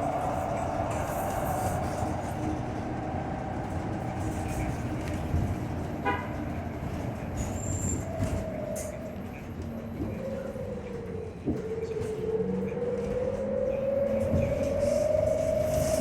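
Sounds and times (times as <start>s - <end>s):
trolleybus road rumble: 0.0s - 16.0s.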